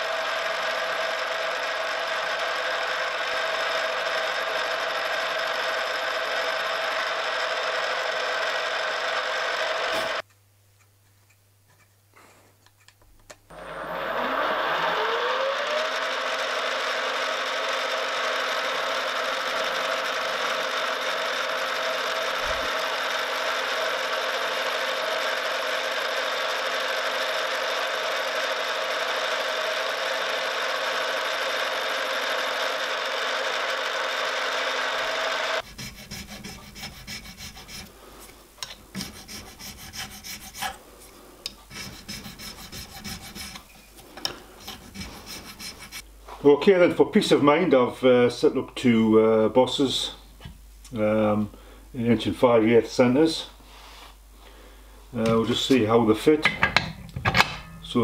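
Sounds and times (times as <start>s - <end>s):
machine motor grinding gear: 0.0s - 10.2s, 13.5s - 37.9s, 41.4s - 46.0s.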